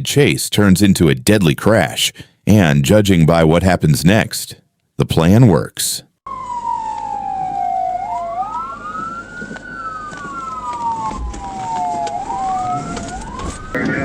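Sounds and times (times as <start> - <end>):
police sirens wailing: 6.3 - 14.0.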